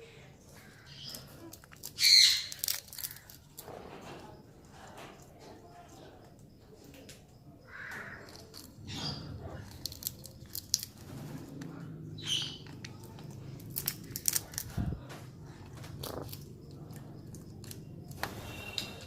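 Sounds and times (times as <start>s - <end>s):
sharp clicks and snaps: 1.1s - 3.6s, 9.6s - 11.7s, 12.4s - 14.9s.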